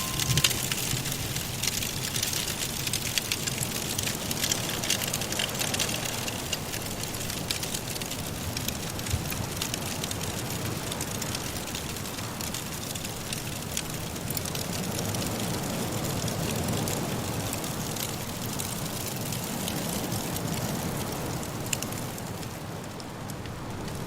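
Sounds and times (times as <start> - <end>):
wind blowing: 0.0 - 2.9
firewood crackling: 0.0 - 24.0.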